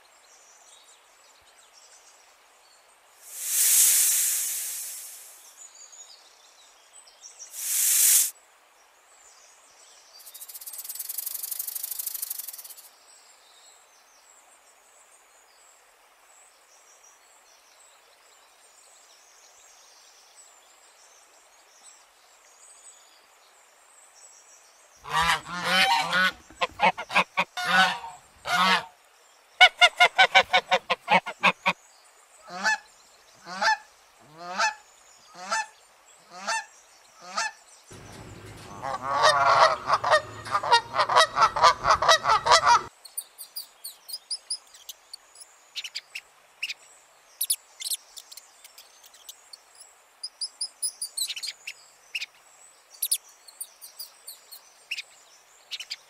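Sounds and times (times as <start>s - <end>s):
hiss: 3.2s - 5.6s, 7.5s - 8.4s
geese honking: 25.0s - 28.8s, 38.0s - 42.9s.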